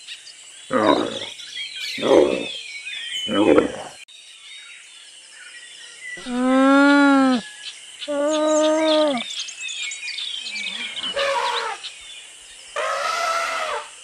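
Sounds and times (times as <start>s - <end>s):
birds chirping faintly: 0.0s - 13.8s
alpaca humming: 6.2s - 7.4s, 8.1s - 9.2s.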